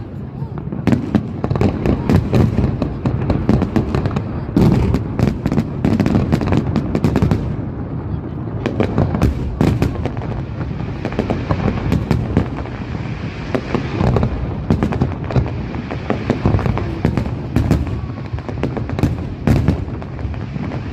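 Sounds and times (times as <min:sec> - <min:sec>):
fireworks bangs: 0:00.0 - 0:20.9
fireworks rumble and crackle: 0:00.0 - 0:20.9.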